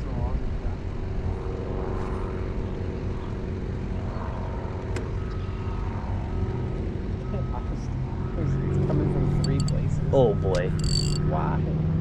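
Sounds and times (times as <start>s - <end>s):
boat motor running: 9.2s - 11.5s
sharp click: 9.4s - 9.8s, 10.5s - 11.2s.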